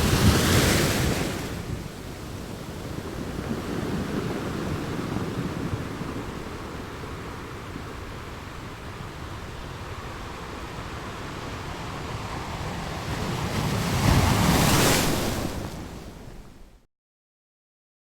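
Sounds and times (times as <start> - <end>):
waves washing: 0.0 - 16.8.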